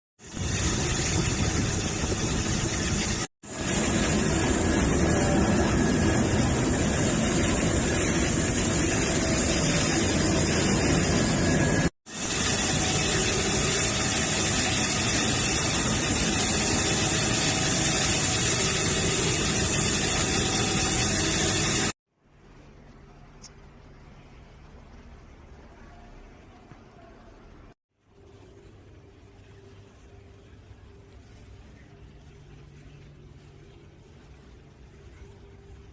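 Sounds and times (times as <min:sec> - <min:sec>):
machine running with dense hiss: 0:00.2 - 0:22.0.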